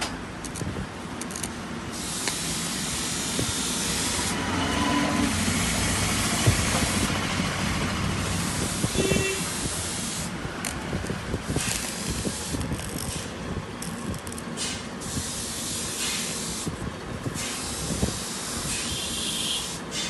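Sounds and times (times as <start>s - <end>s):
welder arc hissing and crackling: 1.9s - 4.4s, 8.3s - 10.4s, 11.4s - 13.3s, 15.0s - 16.7s, 17.4s - 20.0s.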